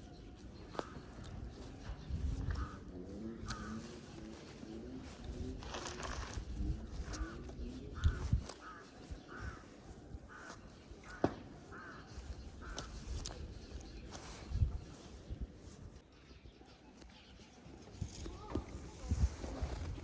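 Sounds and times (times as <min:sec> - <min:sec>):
crow cawing: 0:02.4 - 0:04.2, 0:08.0 - 0:13.0.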